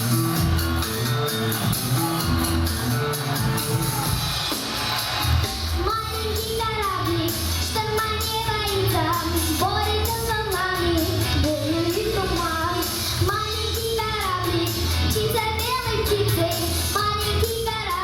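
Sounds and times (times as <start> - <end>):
backing track with bass beat: 0.0 - 18.0
child singing: 5.8 - 18.0.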